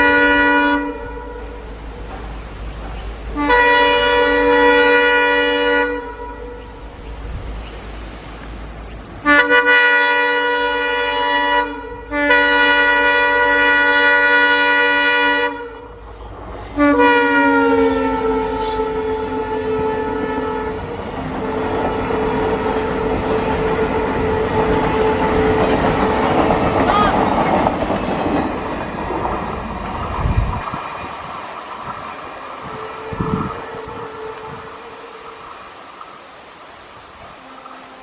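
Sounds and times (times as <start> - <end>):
locomotive horn blasts: 0.0 - 2.0, 3.3 - 7.0, 9.2 - 26.8, 32.4 - 35.8, 37.2 - 38.0
train rumbling: 0.0 - 38.0.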